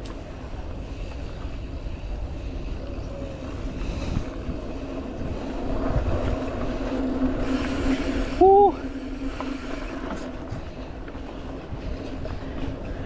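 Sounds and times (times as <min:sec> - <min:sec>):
tyres rolling over dirt trail: 0:00.0 - 0:13.0
wind rumble on microphone: 0:00.0 - 0:13.0.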